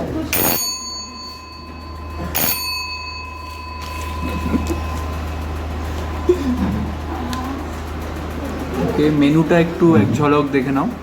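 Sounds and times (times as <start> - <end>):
small metal bell ringing: 0.3 - 6.3.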